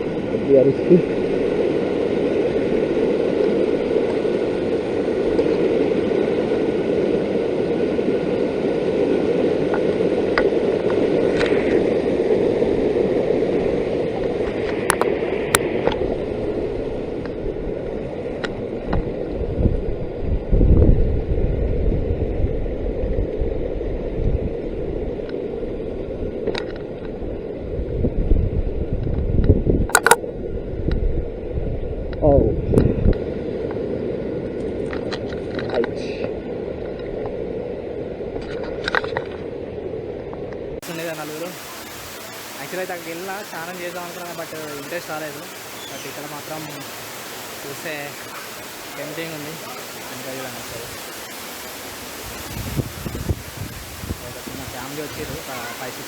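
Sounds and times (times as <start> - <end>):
waterfall rushing: 29.9 - 30.2, 40.8 - 56.0
sharp clicks: 30.0 - 30.2.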